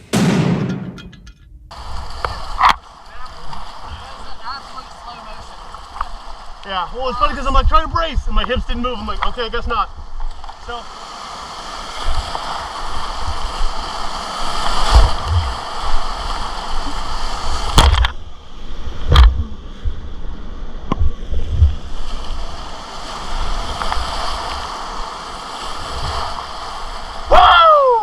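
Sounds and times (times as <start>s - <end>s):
sharp knocks: 0.0s - 1.8s
whitewater river rushing: 1.8s - 7.5s.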